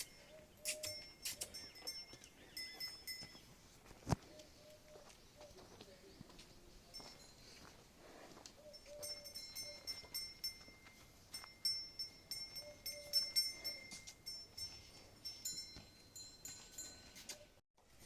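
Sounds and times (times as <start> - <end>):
small metal bells jingling: 0.0 - 3.6, 6.9 - 7.9, 8.6 - 17.5.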